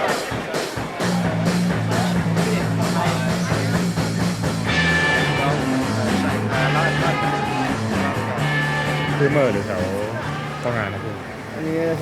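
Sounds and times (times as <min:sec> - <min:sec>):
drum kit: 0:00.0 - 0:08.3.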